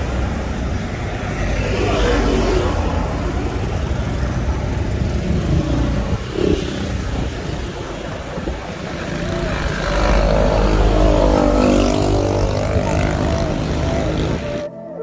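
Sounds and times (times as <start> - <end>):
low traffic rumble: 0.0 - 14.7
vehicles passing close by: 0.0 - 14.7.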